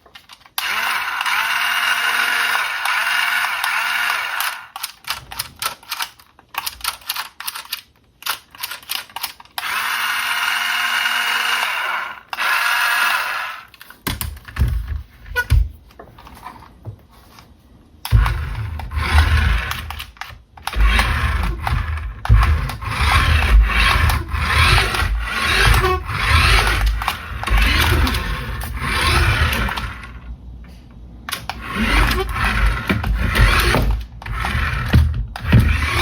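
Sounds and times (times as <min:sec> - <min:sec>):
toy car electric motor whirring: 0:00.5 - 0:05.0, 0:07.5 - 0:13.9, 0:18.1 - 0:30.2, 0:31.3 - 0:36.0
toy car knocking and rubbing: 0:18.1 - 0:30.1, 0:31.3 - 0:36.0.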